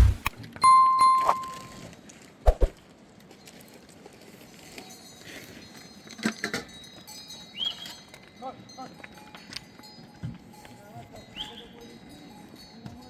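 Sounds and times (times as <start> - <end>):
ringing chime tone: 0.6 - 1.8.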